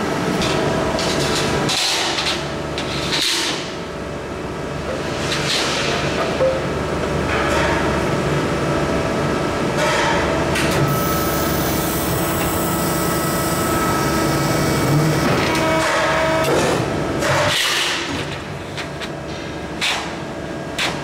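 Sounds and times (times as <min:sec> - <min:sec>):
press brake machine hum: 0:10.3 - 0:19.8.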